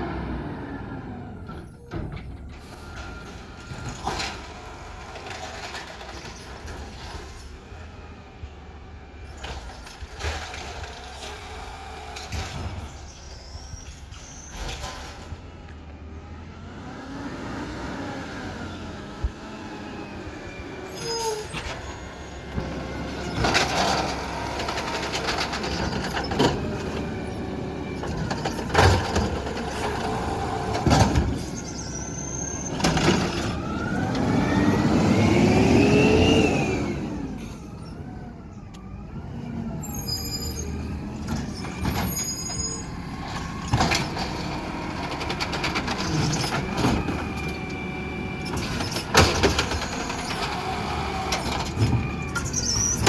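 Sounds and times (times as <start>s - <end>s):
garbage truck engine revving: 0.0s - 53.0s
high squealing: 31.4s - 32.9s, 39.8s - 44.4s.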